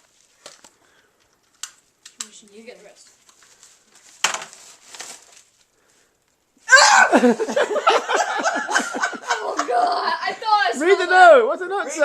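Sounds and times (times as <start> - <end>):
wrapping paper rustling and tearing: 1.5 - 6.2
person shouting in surprise: 6.7 - 7.3.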